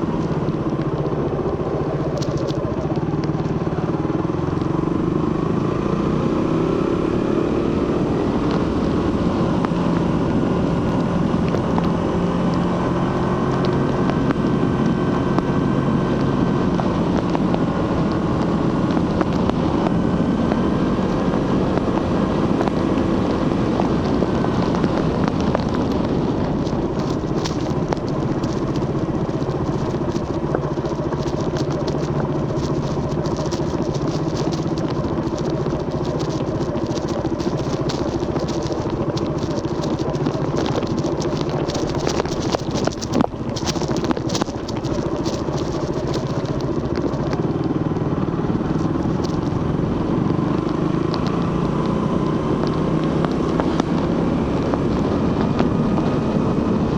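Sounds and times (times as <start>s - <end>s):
fast crackle of clicks: 0.0s - 4.8s, 22.6s - 54.0s
motorcycle engine running: 0.0s - 56.9s.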